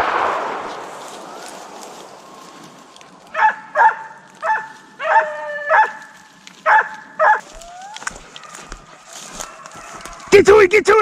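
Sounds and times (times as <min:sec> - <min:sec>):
hound barking and baying: 0:03.3 - 0:10.4.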